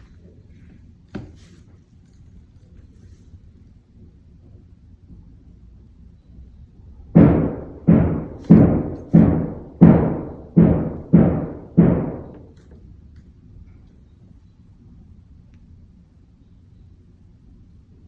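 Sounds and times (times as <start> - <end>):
heavy construction hammering: 7.2 - 12.6.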